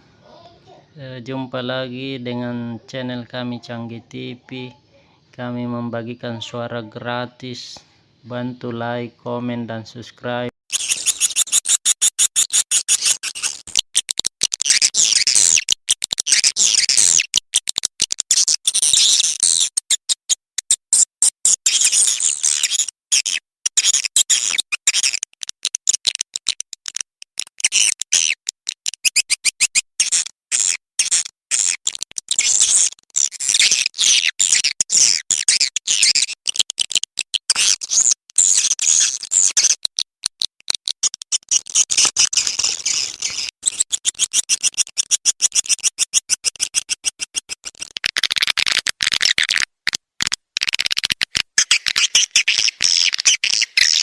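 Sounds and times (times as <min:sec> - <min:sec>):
swiftlets twittering chirps: 0:10.7 - 0:14.0.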